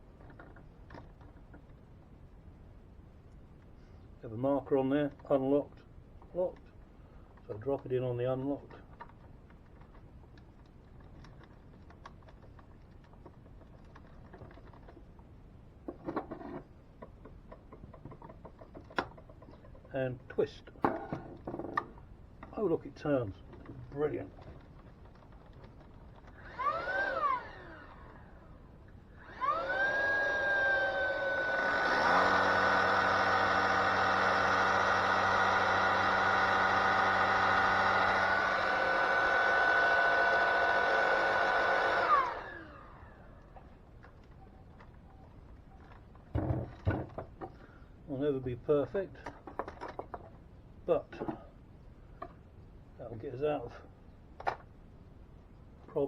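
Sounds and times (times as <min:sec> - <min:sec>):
vacuum cleaner running: 0:26.4 - 0:28.1, 0:29.2 - 0:43.2.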